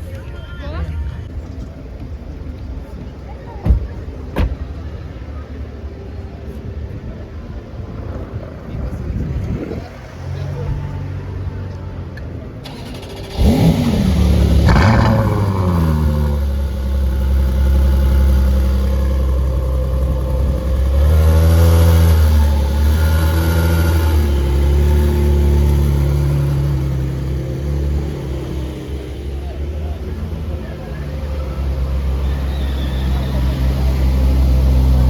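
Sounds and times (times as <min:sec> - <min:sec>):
car engine revving: 0:12.6 - 0:35.0.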